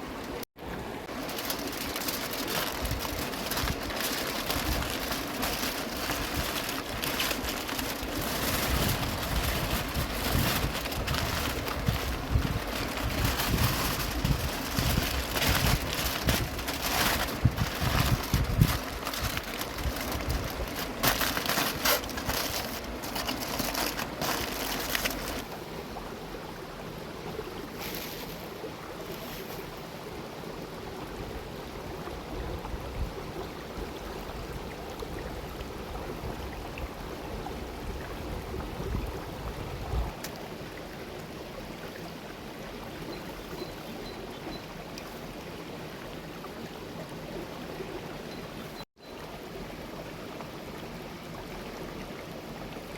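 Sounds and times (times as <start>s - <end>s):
river water running: 0.0s - 52.9s
close crackles and knocks: 1.2s - 25.4s.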